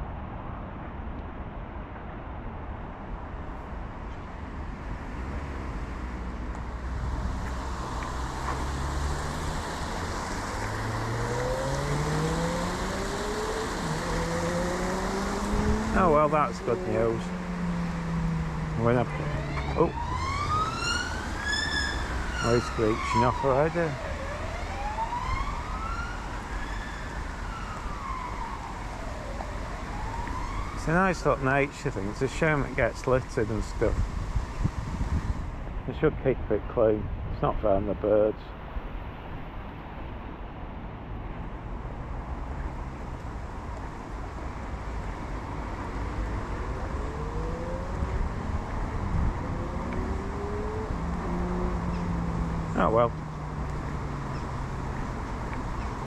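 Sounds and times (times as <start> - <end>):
road traffic passing: 1.7 - 56.0
fire engine siren wailing: 8.5 - 31.4, 46.0 - 53.1
wind on microphone: 33.7 - 35.9, 46.6 - 52.7.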